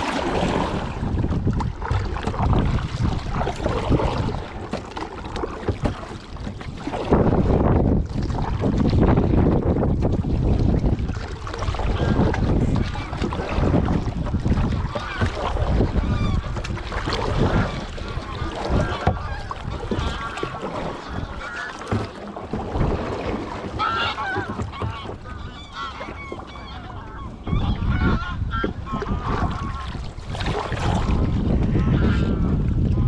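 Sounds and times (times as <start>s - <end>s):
wind rumbling on microphone: 0.0s - 33.0s
geese honking: 23.8s - 29.8s.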